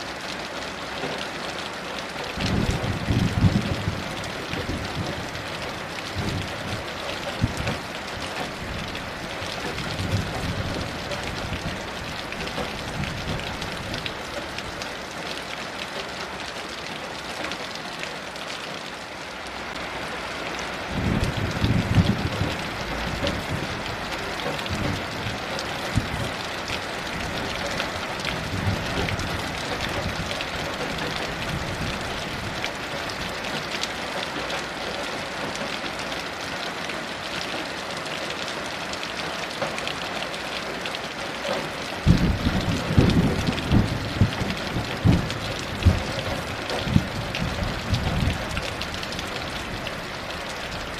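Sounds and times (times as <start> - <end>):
heavy rain falling: 0.0 - 50.9
distant thunder rumbles: 2.4 - 14.1, 20.9 - 33.3, 42.0 - 49.8.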